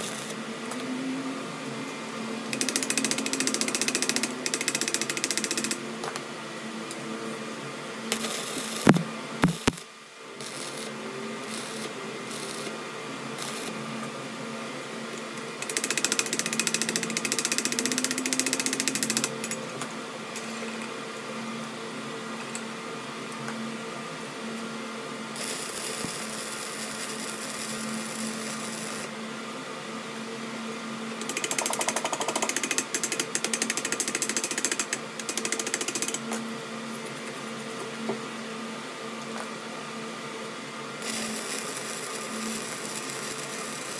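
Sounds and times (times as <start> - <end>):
metalworking machine humming: 0.0 - 9.8, 39.6 - 43.9.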